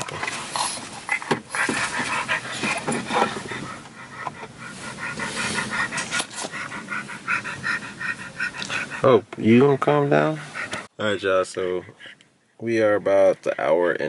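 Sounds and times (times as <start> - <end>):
dog panting quickly: 0.7 - 9.2, 10.0 - 10.9.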